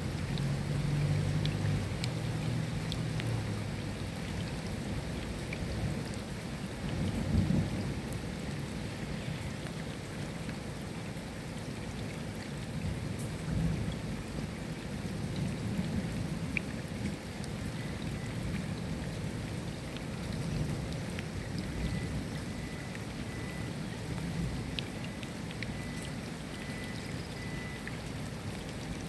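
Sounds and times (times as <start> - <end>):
rain drop ticks: 0.0 - 29.0
steady rain: 0.0 - 29.0.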